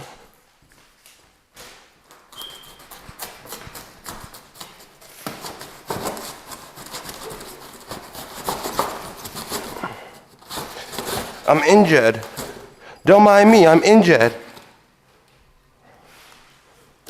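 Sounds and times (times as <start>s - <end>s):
cardboard and plastic rustling: 0.9s - 12.8s.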